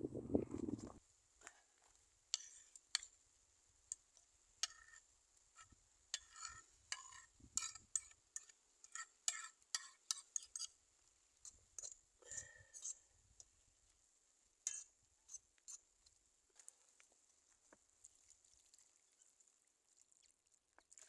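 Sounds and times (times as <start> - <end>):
utensil clinking and scraping cookware: 6.2 - 10.8.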